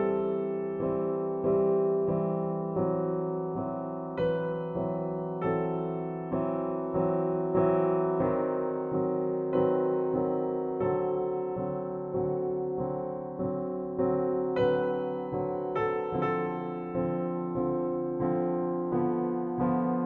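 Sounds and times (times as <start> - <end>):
slow keyboard chords: 0.0 - 20.0.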